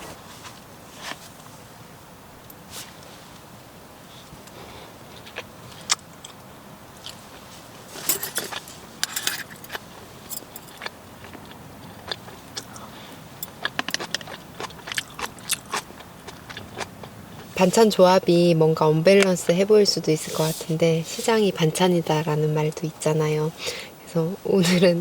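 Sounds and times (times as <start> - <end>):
utensils clattering: 8.0 - 10.9.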